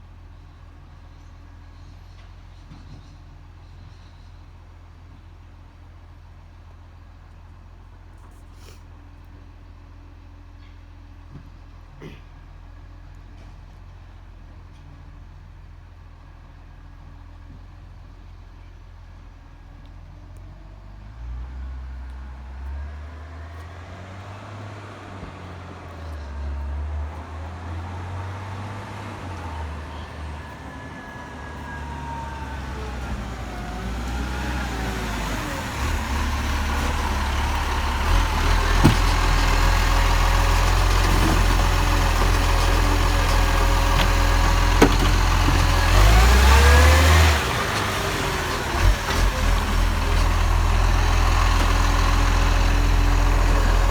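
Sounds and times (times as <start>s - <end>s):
garbage truck engine running: 22.6s - 53.9s.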